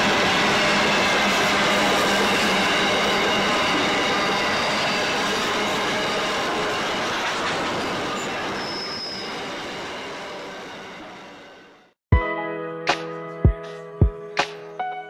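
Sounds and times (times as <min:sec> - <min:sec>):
train wheels rumbling on rail: 0:00.0 - 0:11.2
wheels squealing: 0:00.2 - 0:11.3.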